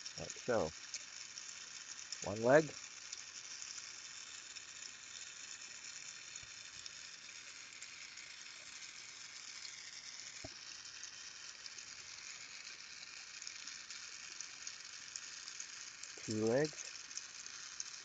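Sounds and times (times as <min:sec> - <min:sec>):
torch flame hissing: 0:00.0 - 0:01.0, 0:02.2 - 0:02.8, 0:15.2 - 0:17.9.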